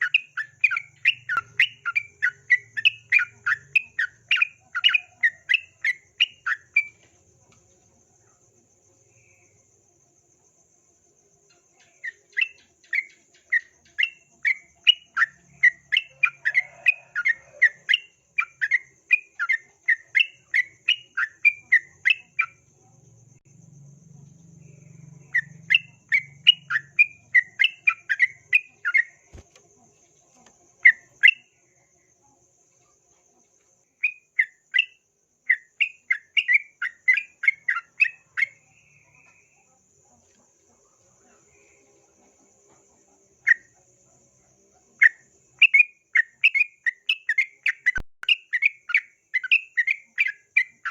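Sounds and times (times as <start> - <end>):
bird chirping rapidly: 0.0 - 7.0, 11.8 - 22.6, 25.2 - 29.4, 34.0 - 38.6, 45.0 - 50.9.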